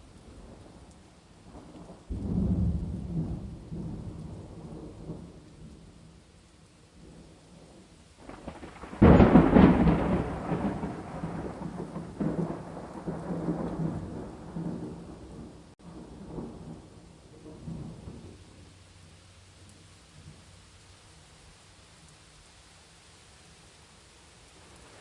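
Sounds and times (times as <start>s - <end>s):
steady rain falling: 0.0s - 25.0s
rolling thunder: 1.5s - 5.9s, 7.0s - 18.6s
thunderclap: 8.2s - 18.4s.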